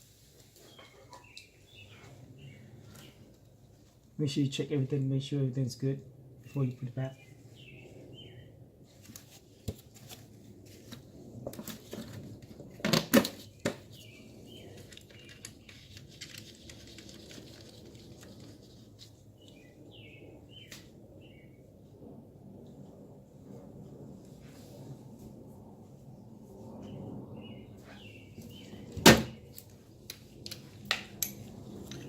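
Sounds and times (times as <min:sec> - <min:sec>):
small birds chirping: 0:00.6 - 0:03.3, 0:06.5 - 0:08.6, 0:13.4 - 0:17.5, 0:18.6 - 0:21.6, 0:26.9 - 0:28.9
clicks and knocks of parts handled: 0:29.6 - 0:32.0.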